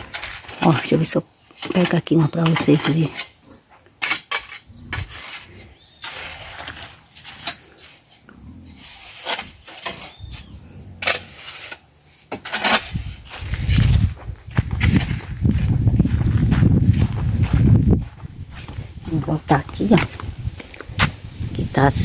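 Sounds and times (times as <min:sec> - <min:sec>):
low rumble: 0:12.9 - 0:22.0
branches rustling and snapping: 0:18.5 - 0:21.6.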